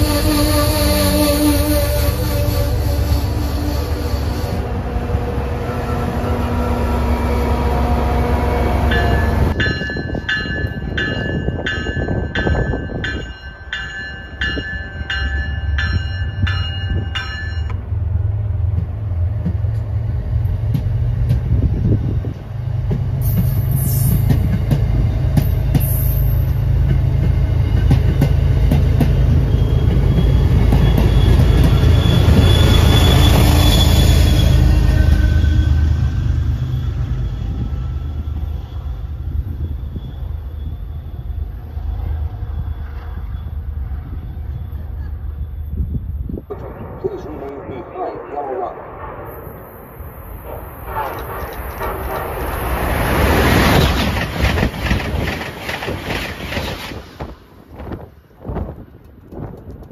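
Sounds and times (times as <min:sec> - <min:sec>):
train wheels rumbling on rail: 0:00.0 - 0:47.6, 0:48.8 - 0:59.9.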